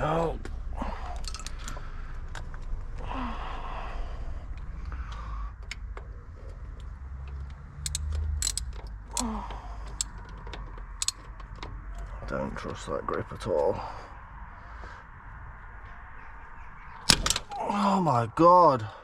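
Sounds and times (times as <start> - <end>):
steady low hum: 0.0 - 7.0
tool clicks and clinks on metal: 1.2 - 1.7, 7.8 - 9.3, 9.9 - 10.2, 11.0 - 11.2
person sighing: 3.0 - 4.2, 9.2 - 9.8.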